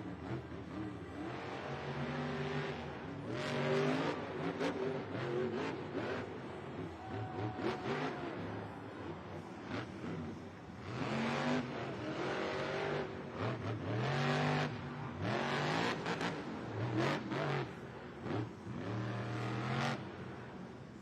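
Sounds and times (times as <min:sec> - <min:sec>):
truck engine revving: 0:09.3 - 0:20.2.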